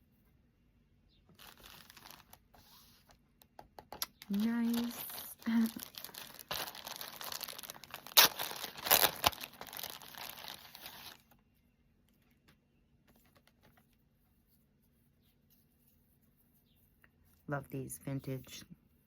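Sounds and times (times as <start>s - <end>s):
packaging wrap crinkling: 1.3s - 2.8s, 4.0s - 11.4s
wrap tearing: 1.4s - 2.4s, 4.0s - 11.2s.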